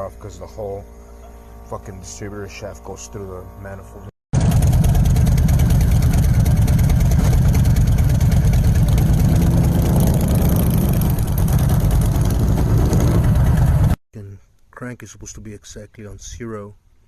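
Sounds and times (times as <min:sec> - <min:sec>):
truck engine rumbling: 0:04.4 - 0:14.0.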